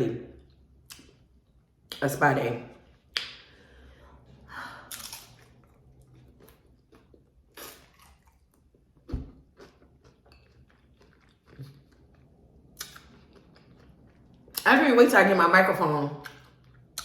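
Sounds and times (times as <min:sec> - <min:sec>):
person chewing crunchy taco: 0:04.9 - 0:14.6, 0:16.2 - 0:17.0.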